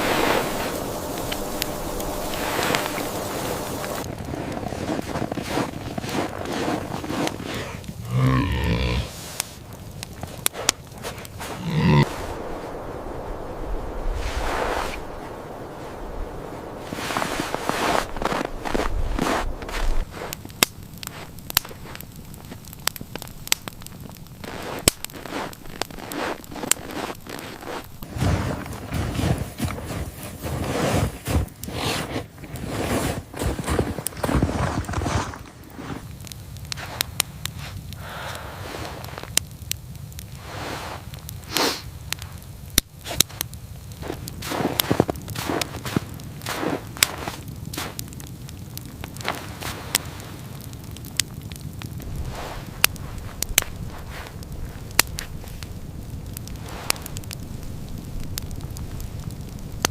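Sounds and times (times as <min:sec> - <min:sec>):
rustling movement: 0:00.0 - 0:12.8, 0:14.1 - 0:22.6
wood fire crackling and popping: 0:00.0 - 0:59.9
soft swishing: 0:11.4 - 0:20.2.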